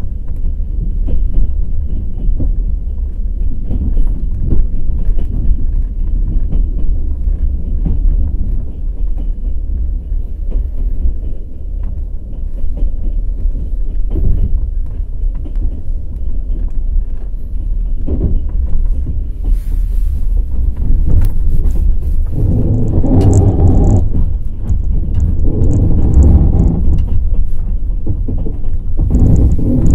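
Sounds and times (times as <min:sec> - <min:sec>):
train wheels rumbling on rails: 0:00.0 - 0:29.9
rail joint knocks: 0:22.3 - 0:29.9.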